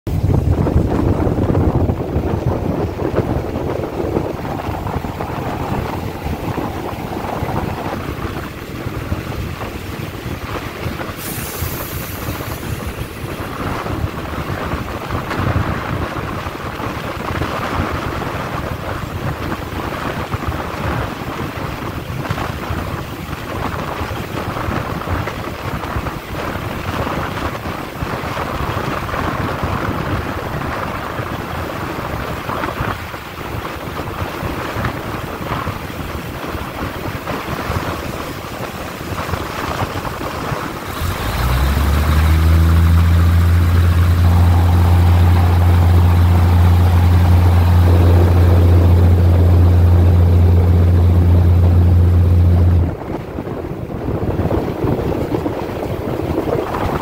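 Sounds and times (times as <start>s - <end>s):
wind rushing over microphone: 0.0s - 57.0s
train wheels rumbling on rails: 0.1s - 57.0s
short high hiss: 11.2s - 13.2s.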